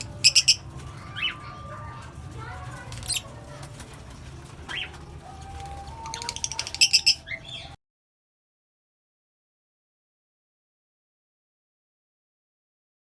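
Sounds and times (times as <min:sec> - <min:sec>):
parrots chirping: 0:00.0 - 0:07.8.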